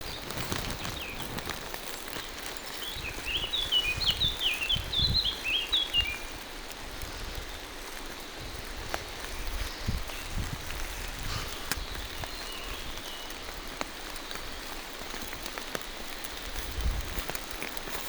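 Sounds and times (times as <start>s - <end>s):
songbird chirping: 0.0s - 6.4s
rain falling through forest: 0.0s - 18.0s.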